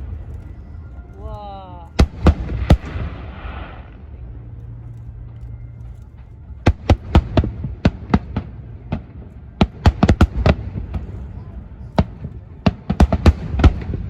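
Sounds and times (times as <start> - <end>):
fireworks crackling: 0.0 - 14.0.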